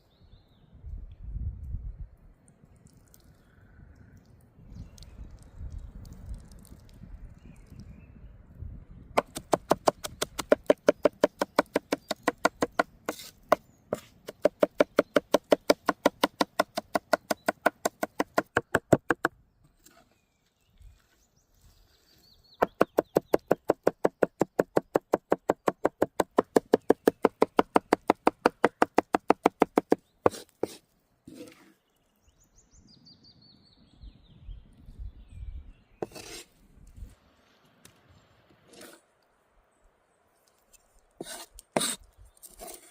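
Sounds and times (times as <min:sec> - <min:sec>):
knife chopping on cutting board: 0:14.2 - 0:19.2.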